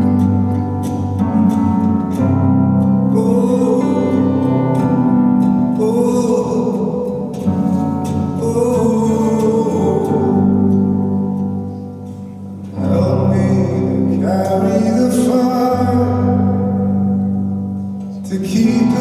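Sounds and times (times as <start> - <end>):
held chords: 0.0 - 19.0
person singing: 3.0 - 11.7, 12.8 - 17.0, 18.0 - 19.0.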